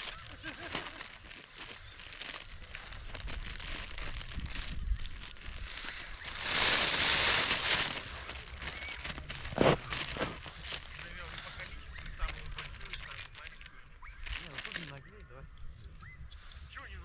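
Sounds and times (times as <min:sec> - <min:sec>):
rustling and crinkling handling: 0:00.0 - 0:16.0
loud rushing hiss: 0:05.8 - 0:09.9.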